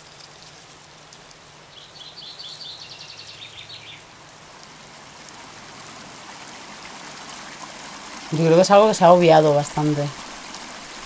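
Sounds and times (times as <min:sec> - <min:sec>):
running water hiss: 0:00.0 - 0:11.0
small bird singing: 0:01.7 - 0:04.1.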